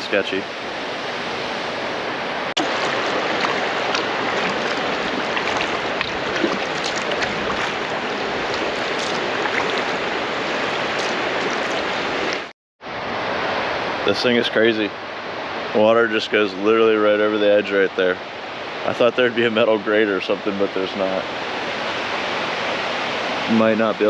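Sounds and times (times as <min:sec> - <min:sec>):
water rushing over spillway: 0:02.6 - 0:12.5.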